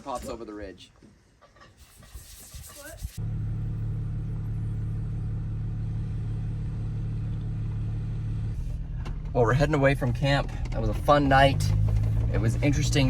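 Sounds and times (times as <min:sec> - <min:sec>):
car engine and road drone: 0:03.2 - 0:13.0.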